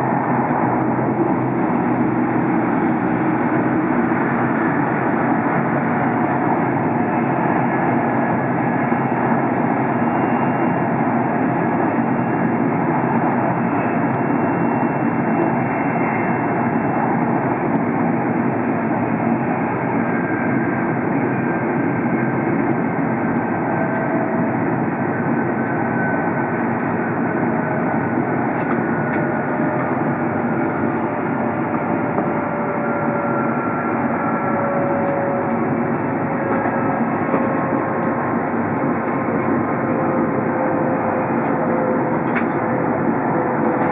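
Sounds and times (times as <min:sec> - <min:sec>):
train running noise in cabin: 0:00.0 - 0:43.9
faint whining tones: 0:23.3 - 0:43.9.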